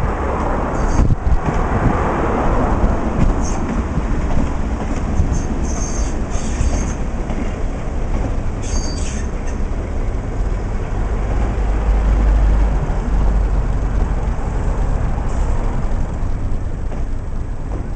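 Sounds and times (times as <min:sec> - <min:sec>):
train rumbling on track: 0:00.0 - 0:17.9
wheels squealing on rail: 0:00.7 - 0:01.2, 0:03.2 - 0:03.8, 0:05.2 - 0:07.1, 0:08.5 - 0:09.7.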